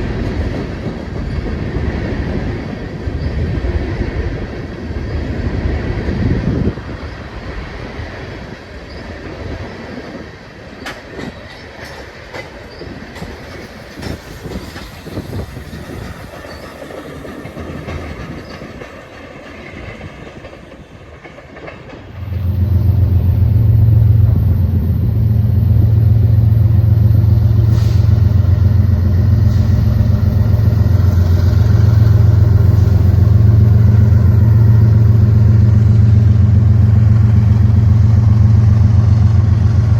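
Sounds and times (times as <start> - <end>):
train wheels clicking over rail joints: 6.8 - 39.9
low engine rumble: 22.1 - 39.9.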